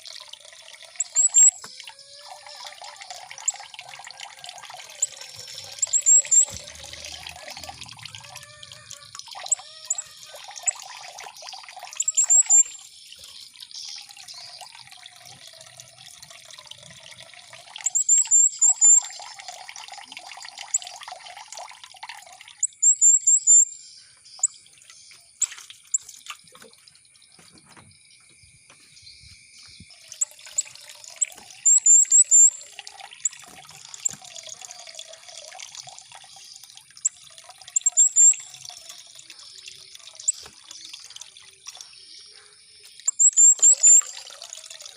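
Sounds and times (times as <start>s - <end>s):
water trickling and gurgling: 0.0s - 44.9s
songbird high chirps: 0.9s - 19.6s, 22.6s - 34.8s, 36.2s - 44.7s.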